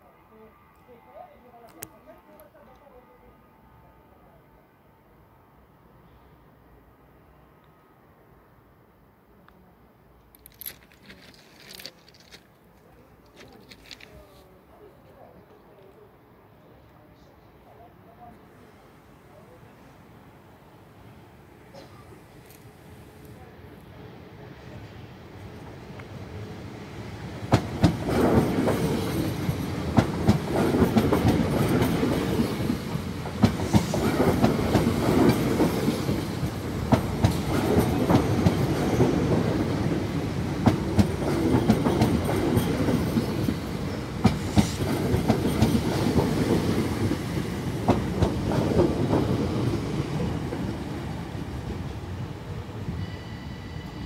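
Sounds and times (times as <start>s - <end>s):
train wheels rumbling on rails: 25.3s - 54.0s.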